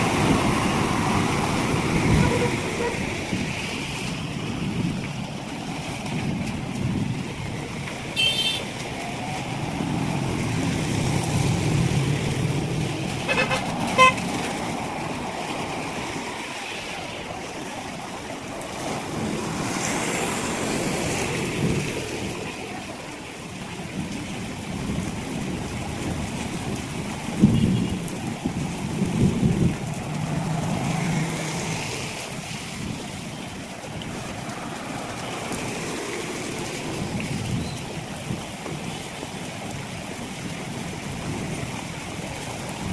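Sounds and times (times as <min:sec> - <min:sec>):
vehicle traffic on wet street: 0:00.0 - 0:42.9
short horn toots: 0:13.3 - 0:14.2.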